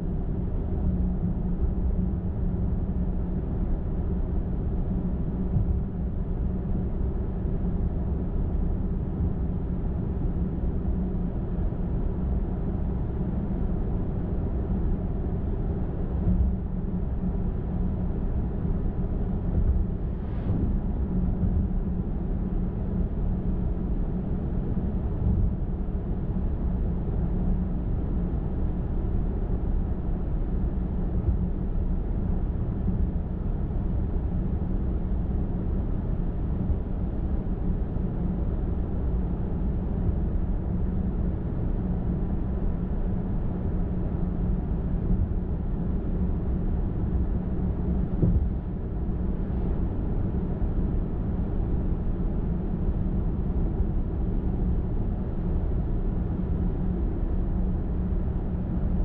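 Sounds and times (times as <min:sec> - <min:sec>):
car road noise on highway: 0:47.9 - 0:49.8.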